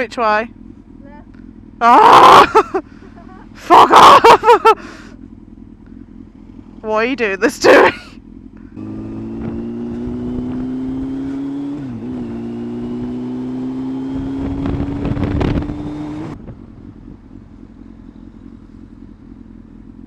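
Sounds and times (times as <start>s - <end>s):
low steady rumble: 0.0s - 10.6s, 14.6s - 20.0s
motorcycle engine accelerating: 0.0s - 20.0s
wind buffeting microphone: 14.1s - 17.4s.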